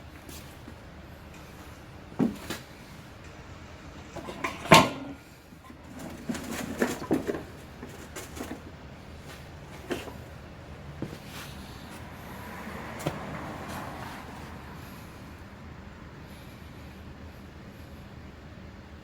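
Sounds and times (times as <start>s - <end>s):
objects knocking and clattering: 4.2s - 8.7s.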